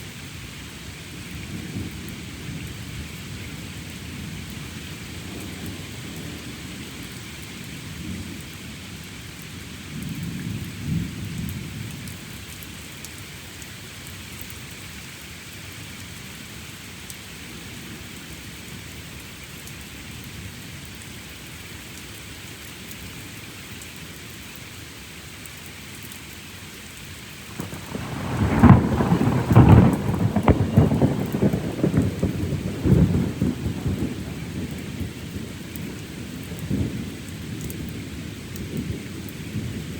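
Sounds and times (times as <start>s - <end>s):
steady rain falling: 0.0s - 39.9s
loud thunderclap: 27.5s - 36.0s
thunder rumbling: 27.5s - 39.9s.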